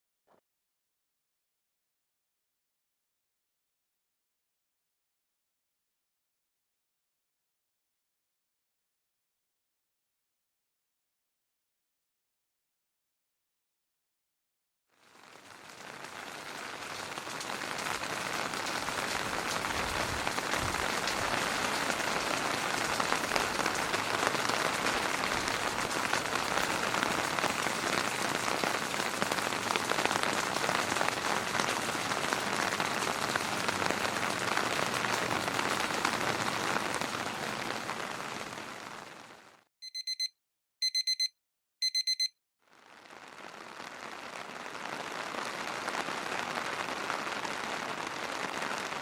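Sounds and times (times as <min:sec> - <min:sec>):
heavy rain: 0:15.0 - 0:39.6, 0:42.7 - 0:49.0.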